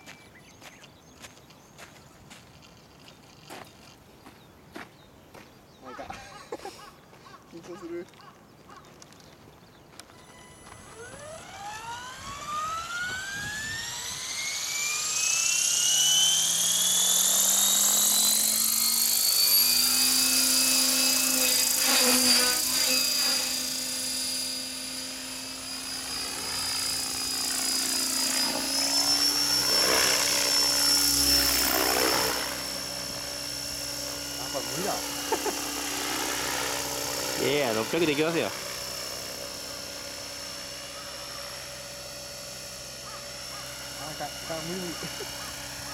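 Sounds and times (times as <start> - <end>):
helicopter rotor noise: 5.8 - 45.9
electric motor whine rising: 9.8 - 45.9.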